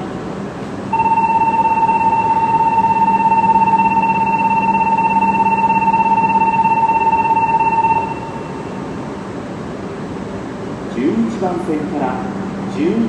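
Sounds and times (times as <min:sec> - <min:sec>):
electronic buzzer tone: 0:00.9 - 0:08.8.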